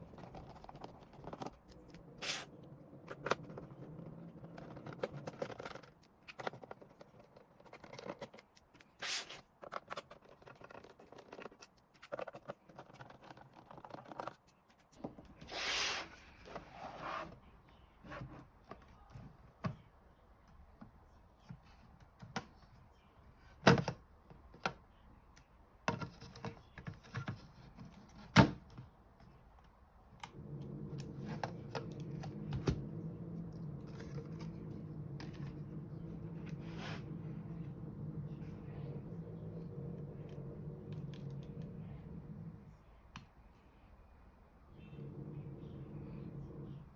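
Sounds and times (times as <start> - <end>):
plastic case clicks and scraping: 3.1 - 14.5
low hum: 30.2 - 43.8, 44.4 - 46.9.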